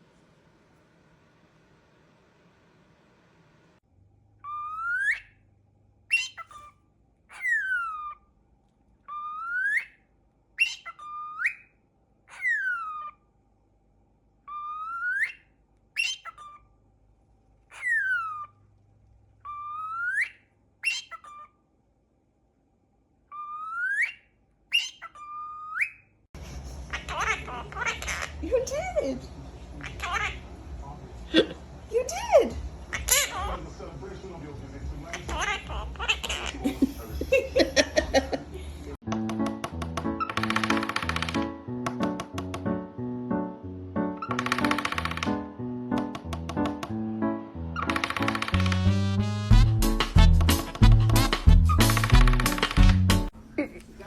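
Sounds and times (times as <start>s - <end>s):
bird whistling: 4.4s - 5.4s, 6.1s - 6.7s, 7.4s - 8.2s, 9.1s - 10.0s, 10.6s - 11.7s, 14.5s - 15.4s, 16.0s - 16.6s, 17.8s - 18.5s, 19.4s - 21.5s, 23.3s - 26.0s, 51.5s - 52.1s.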